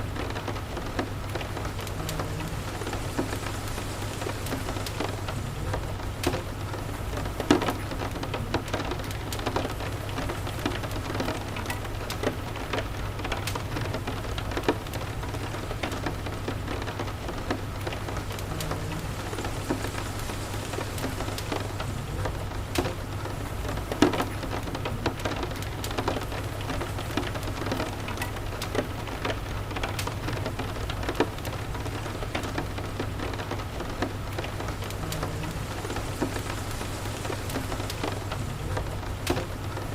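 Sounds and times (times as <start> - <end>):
steady rain: 0.0 - 39.9
wood fire popping and crackling: 0.0 - 39.9
low steady rumble: 0.6 - 7.5, 16.6 - 24.0, 33.7 - 39.9.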